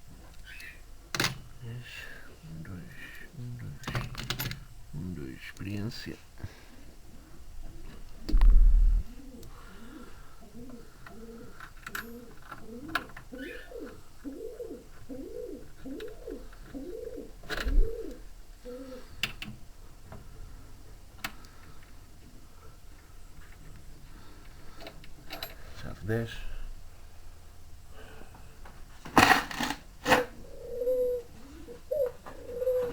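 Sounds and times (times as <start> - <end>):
pigeon cooing: 9.0 - 19.2, 30.2 - 32.9.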